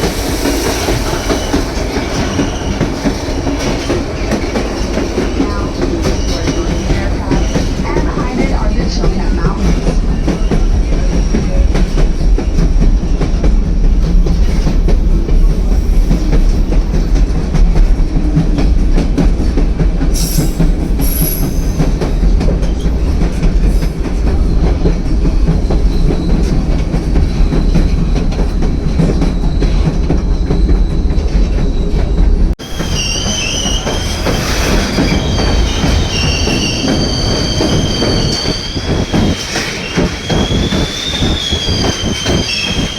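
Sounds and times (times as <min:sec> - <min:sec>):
train rumbling: 0:00.0 - 0:42.9
wheels clacking on rails: 0:00.0 - 0:42.9
wheels squealing: 0:28.8 - 0:42.9.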